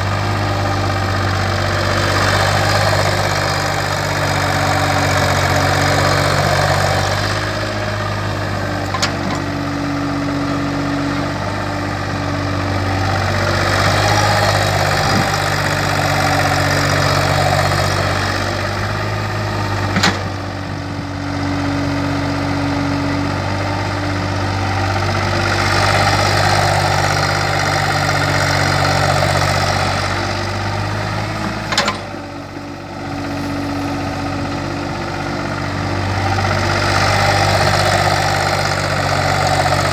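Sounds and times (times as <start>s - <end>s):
excavator diesel engine working: 0.0s - 39.9s.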